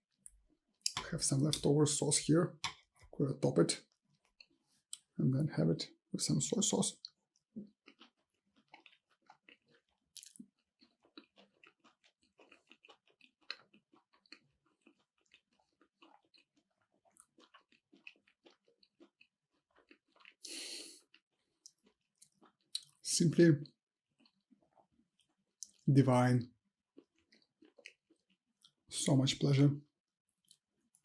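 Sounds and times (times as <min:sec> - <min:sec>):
close chewing with mouth clicks: 0:03.9 - 0:05.1, 0:07.0 - 0:23.0, 0:24.2 - 0:25.8, 0:26.9 - 0:28.8, 0:30.4 - 0:31.0.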